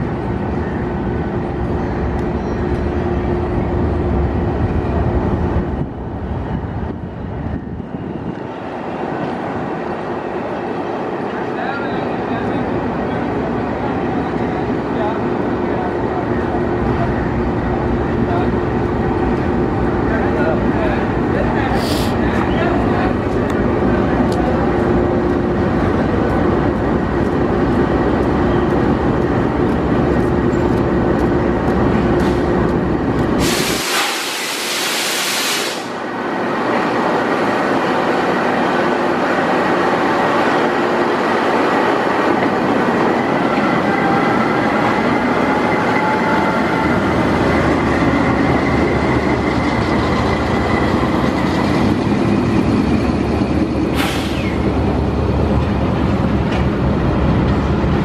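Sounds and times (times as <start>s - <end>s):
diesel locomotive running: 0.0s - 58.0s
loud hiss: 21.8s - 22.2s, 33.4s - 36.0s, 53.9s - 54.6s.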